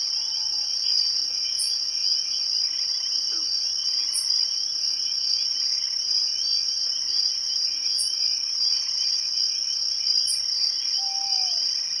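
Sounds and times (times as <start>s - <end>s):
insect chorus trilling: 0.0s - 12.0s.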